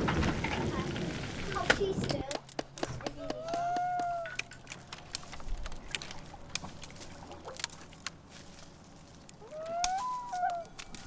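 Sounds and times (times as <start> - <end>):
sharp clicks and taps: 2.1 - 4.6.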